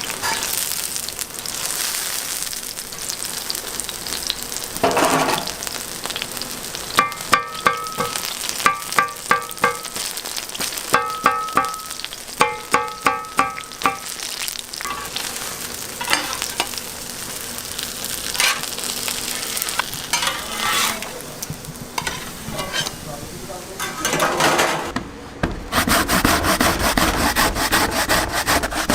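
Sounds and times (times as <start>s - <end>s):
batter frying and sizzling: 0.0s - 24.2s
metal utensil clinking on metal: 7.0s - 10.0s, 14.8s - 15.2s, 16.0s - 16.8s, 18.4s - 18.7s, 19.6s - 21.2s, 22.0s - 23.0s, 23.8s - 24.9s.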